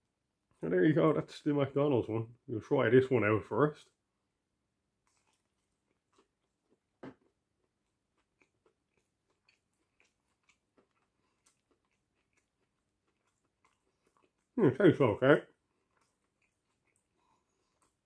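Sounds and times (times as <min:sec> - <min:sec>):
crunch of a bite: 0:05.0 - 0:14.5
chewing mouth clicks: 0:05.0 - 0:14.6, 0:15.7 - 0:18.0.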